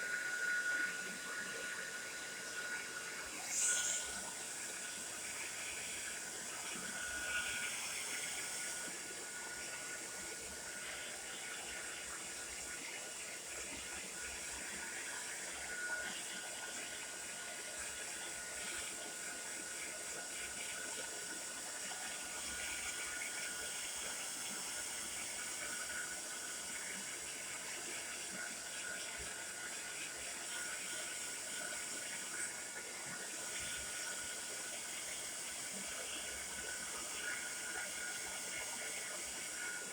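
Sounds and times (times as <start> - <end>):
hair dryer blowing air: 0.0 - 9.8.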